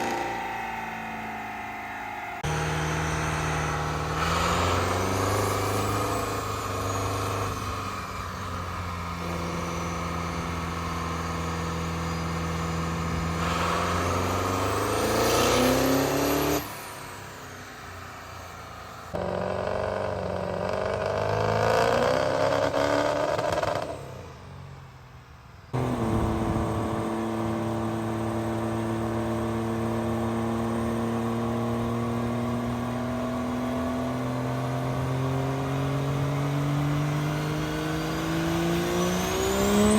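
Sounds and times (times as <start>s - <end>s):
vehicle engines idling and revving: 0.0s - 39.9s.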